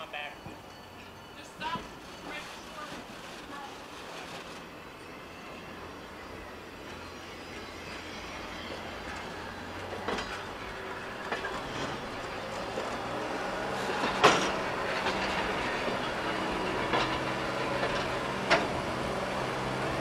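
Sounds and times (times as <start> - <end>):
train rolling along track: 0.0 - 20.0
wheels clacking over rail joints: 5.8 - 20.0.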